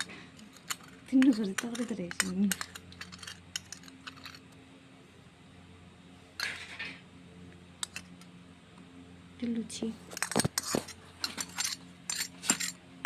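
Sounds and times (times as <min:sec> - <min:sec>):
steady low hum: 0:00.0 - 0:13.0
spoons and dishes clinking: 0:10.1 - 0:12.8.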